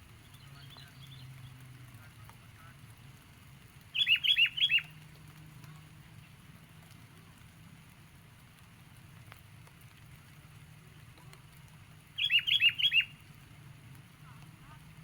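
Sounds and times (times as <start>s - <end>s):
bird chirping: 3.9s - 4.9s, 12.2s - 13.1s.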